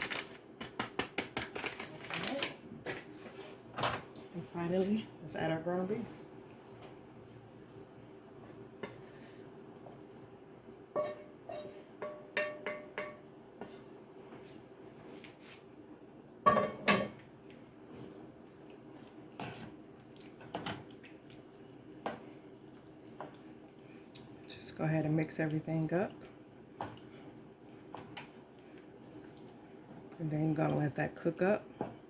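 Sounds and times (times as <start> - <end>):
utensil scraping cooking pot: 11.0 - 14.0.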